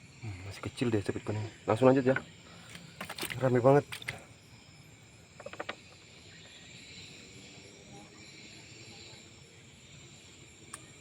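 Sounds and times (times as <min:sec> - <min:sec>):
crickets and insects trilling: 0:00.0 - 0:11.0.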